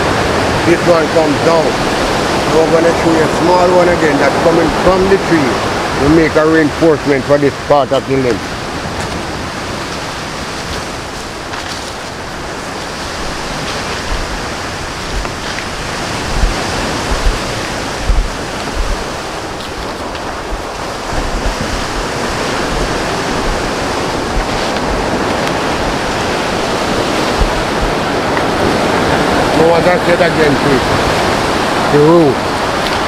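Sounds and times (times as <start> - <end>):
wind buffeting microphone: 0.0 - 33.0
outdoor rushing noise: 8.3 - 33.0.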